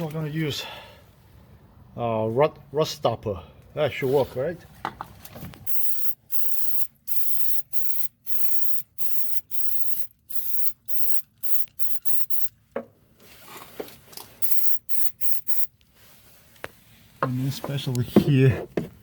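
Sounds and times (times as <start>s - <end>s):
aerosol spray can squirts: 5.7s - 12.5s, 14.4s - 15.7s.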